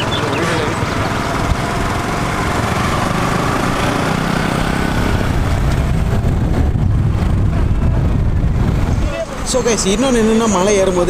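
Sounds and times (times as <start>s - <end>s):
motorcycle engine running: 0.0s - 8.7s
road and wind noise: 0.0s - 11.0s.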